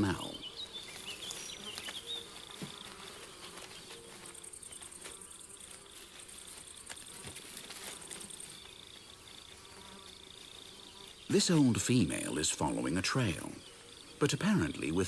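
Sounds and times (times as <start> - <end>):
crickets trilling: 0.0 - 15.0
higher fine insect trill: 0.0 - 15.0
faint ticks or rustles: 0.5 - 12.3.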